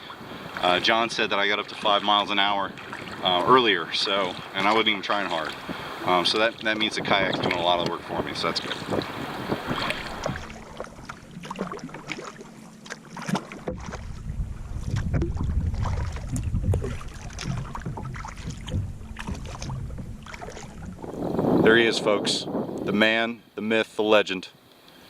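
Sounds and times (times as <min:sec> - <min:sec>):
kayak paddle strokes splashing: 0:00.0 - 0:23.0
water sloshing along hull: 0:00.0 - 0:23.0
low rumble: 0:13.7 - 0:23.1.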